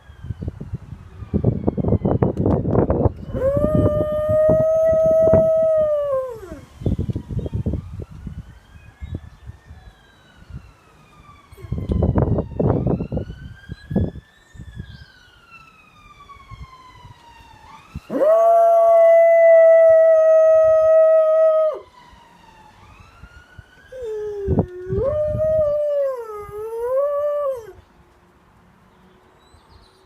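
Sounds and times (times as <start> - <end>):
faint wailing siren: 0.0 - 27.9
dog howling: 18.1 - 21.8, 24.0 - 27.8.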